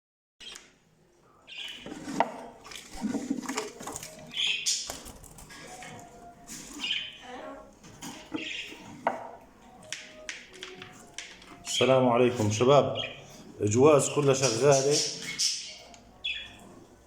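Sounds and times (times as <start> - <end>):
caged birds chirping: 0.4 - 17.0
clicks and knocks from cages: 1.9 - 6.9, 7.8 - 11.7.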